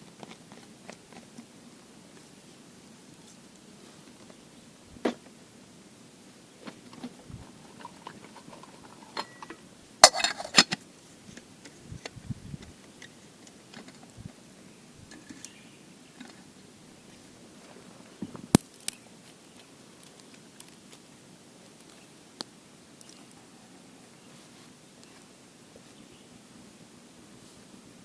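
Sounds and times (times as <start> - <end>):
cookware clicks and knocks: 7.8 - 10.8.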